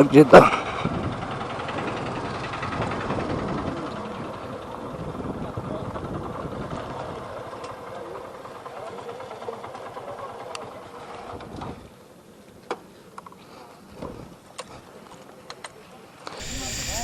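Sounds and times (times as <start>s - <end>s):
motorcycle engine idling: 16.4s - 17.0s.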